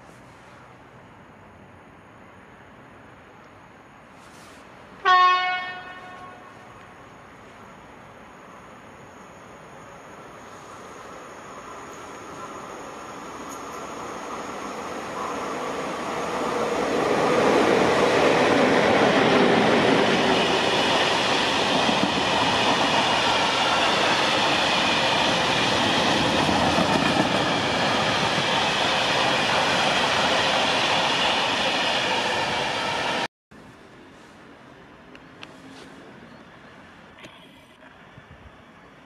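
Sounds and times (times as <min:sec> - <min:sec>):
freight wagons rolling on rail: 0:11.7 - 0:32.9.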